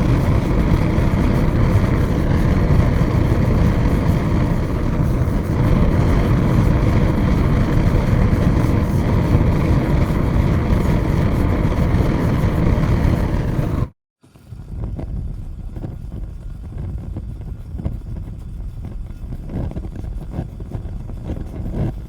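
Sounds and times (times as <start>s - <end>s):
large fire roaring: 0.0s - 13.9s
fire crackling faintly: 0.0s - 22.0s.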